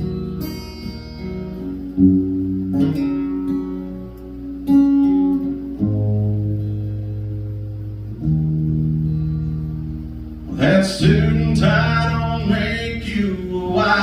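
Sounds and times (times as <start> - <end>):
acoustic guitar chords ringing: 0.0 - 14.0.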